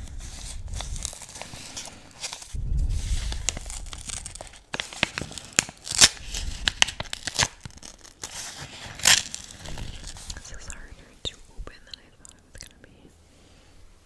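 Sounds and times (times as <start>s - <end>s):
low rubbing rumble: 0.0s - 5.0s, 6.1s - 8.0s, 9.5s - 11.8s.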